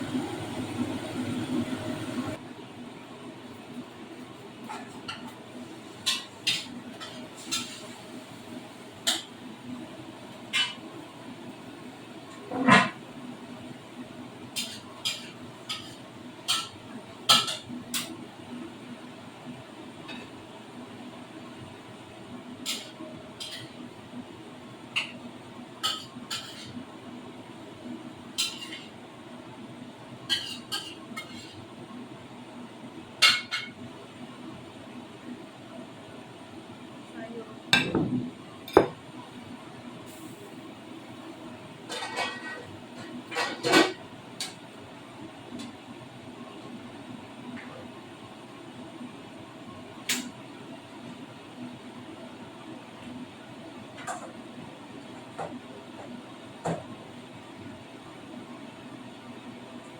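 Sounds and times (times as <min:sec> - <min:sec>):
dishes and cutlery clinking: 0:41.9 - 0:44.0.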